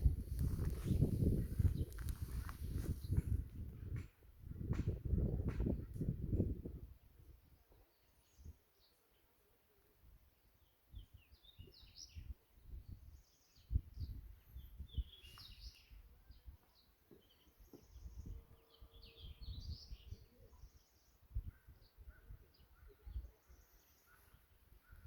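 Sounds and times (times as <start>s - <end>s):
wind buffeting microphone: 0.0s - 7.4s, 11.6s - 15.8s
small birds chirping: 10.6s - 25.0s.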